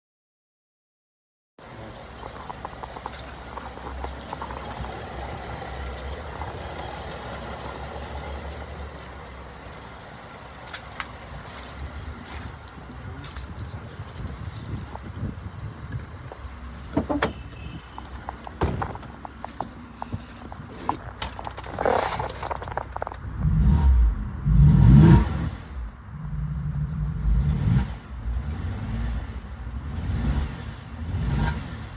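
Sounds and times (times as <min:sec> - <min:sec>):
car engine idling: 0:01.6 - 0:24.4.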